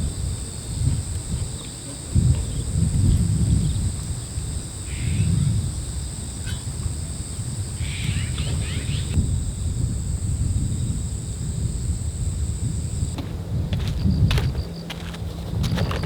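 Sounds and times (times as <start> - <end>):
wind buffeting microphone: 0.0 - 16.0
insect trilling: 0.1 - 13.2.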